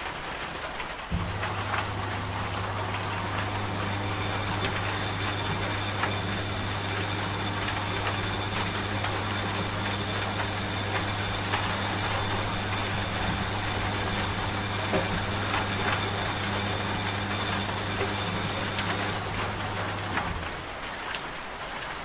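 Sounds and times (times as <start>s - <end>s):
rain pattering: 0.0s - 22.0s
washing machine motor hum: 1.0s - 21.1s.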